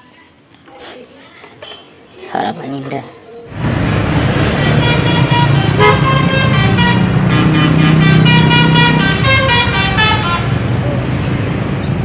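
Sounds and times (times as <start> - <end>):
bus engine running: 3.5 - 12.0
multi-tone bus horn: 4.2 - 10.7.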